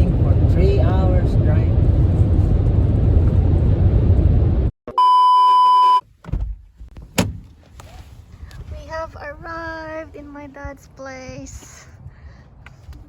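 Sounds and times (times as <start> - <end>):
road noise inside a car: 0.0 - 4.7, 5.5 - 13.0
loud steady beep: 4.9 - 6.0.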